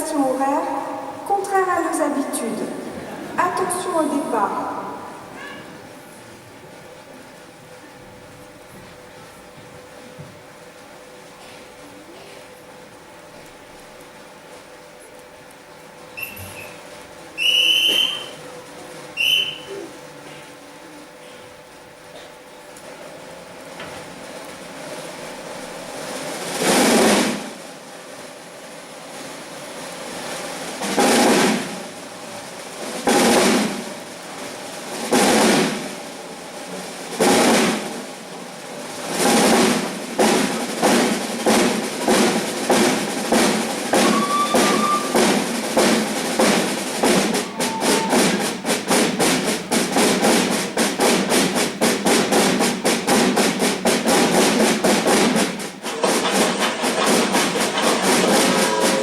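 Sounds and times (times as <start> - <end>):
snare drums playing: 17.4 - 18.4, 19.2 - 19.7, 26.5 - 27.6, 30.8 - 31.8, 33.0 - 33.9, 35.0 - 35.9, 37.2 - 38.0, 39.1 - 59.0.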